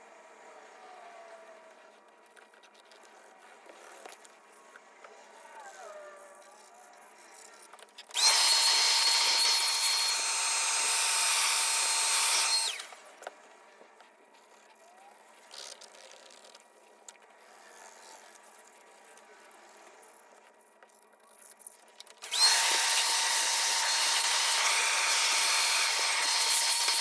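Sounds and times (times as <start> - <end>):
mini vacuum motor whine: 3.0 - 13.6, 22.2 - 27.0.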